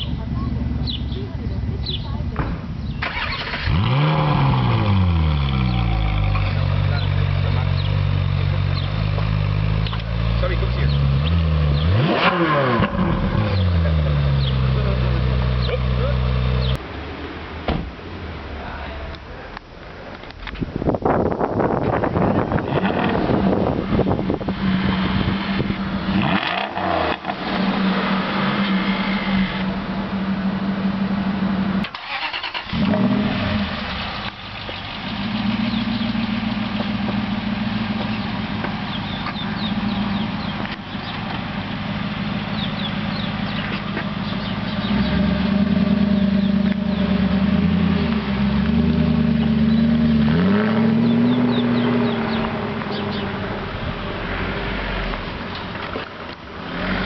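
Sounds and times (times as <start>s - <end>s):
car engine idling: 0.0s - 12.0s, 27.1s - 56.8s
engine revving: 3.0s - 16.8s, 22.6s - 57.0s.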